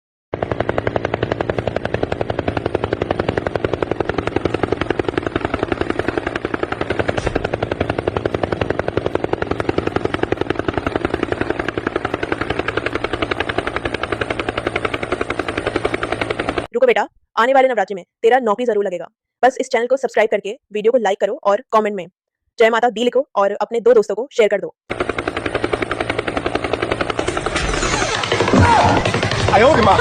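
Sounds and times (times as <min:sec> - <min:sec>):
helicopter rotor chopping: 0:00.3 - 0:16.7, 0:24.9 - 0:30.0.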